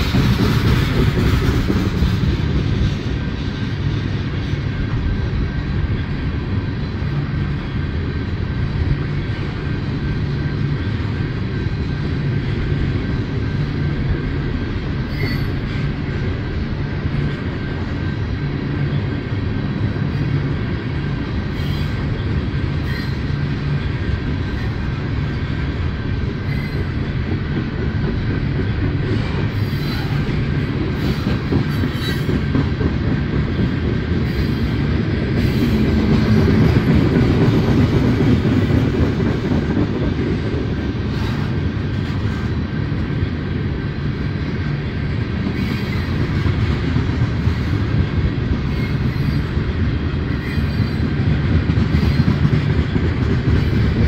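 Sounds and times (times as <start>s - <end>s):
train wheels rumbling on rail: 0.0s - 54.0s
faint wheel squeal: 15.1s - 15.7s.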